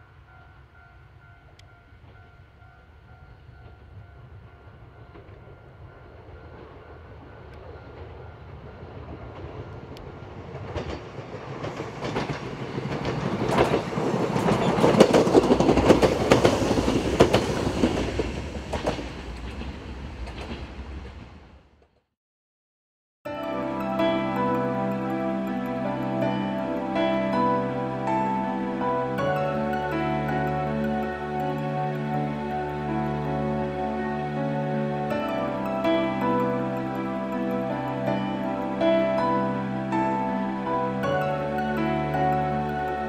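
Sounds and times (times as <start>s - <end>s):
level-crossing warning bell: 0.0s - 18.2s, 23.3s - 43.0s
electric train passing: 0.0s - 21.6s, 23.3s - 43.0s
wheels clacking over rail joints: 9.2s - 21.3s.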